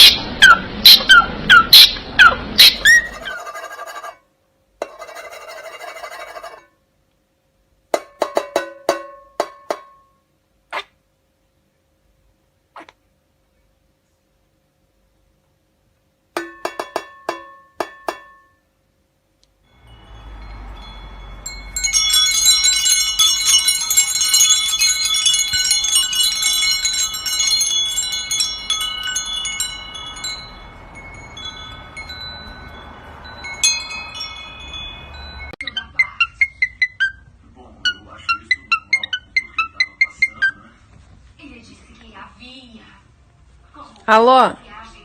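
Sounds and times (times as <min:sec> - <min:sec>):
metal chimes ringing: 0:19.7 - 0:35.6.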